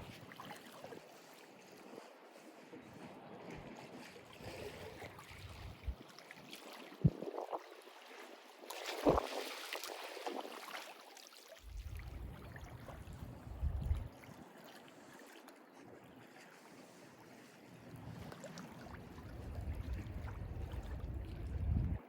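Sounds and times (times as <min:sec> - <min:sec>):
sea water lapping: 0:00.0 - 0:22.0
low rumble: 0:11.7 - 0:14.1, 0:19.3 - 0:22.0.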